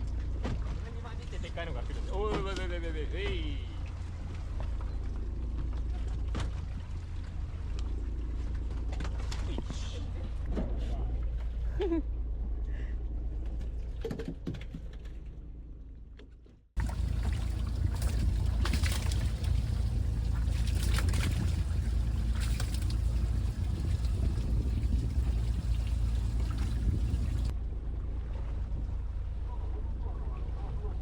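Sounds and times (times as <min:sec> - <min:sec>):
boat engine rumble: 0:00.0 - 0:14.0, 0:16.8 - 0:31.0
wind: 0:00.0 - 0:31.0
water noise: 0:16.8 - 0:27.5.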